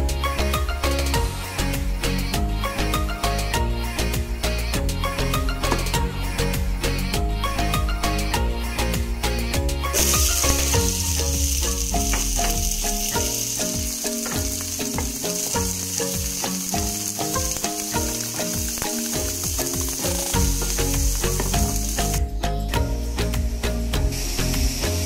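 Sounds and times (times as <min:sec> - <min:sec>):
background music: 0:00.0 - 0:25.0
onion sizzling in oil: 0:09.8 - 0:25.0.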